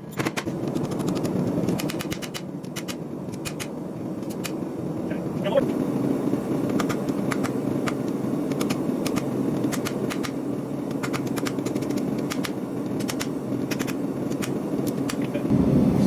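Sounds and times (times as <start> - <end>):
sharp ticks and clicks: 0.3 - 4.6, 6.7 - 15.3
forge burner rumble: 0.4 - 16.0.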